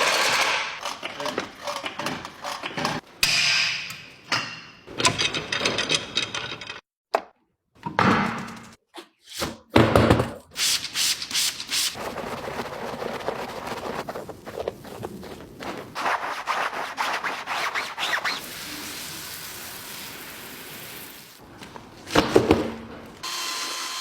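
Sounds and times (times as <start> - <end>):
brushes rubbing on bodywork: 11.2 - 18.6.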